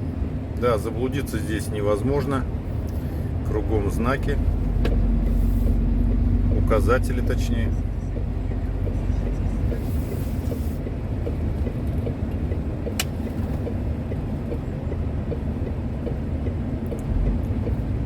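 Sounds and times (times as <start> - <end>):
truck engine running: 0.0 - 18.0
faint regular ticking: 4.2 - 9.9, 10.5 - 17.8.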